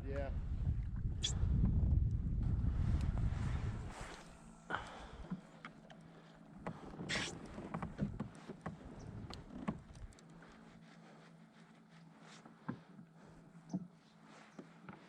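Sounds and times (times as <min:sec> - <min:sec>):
faint steady hum: 0:00.3 - 0:14.9.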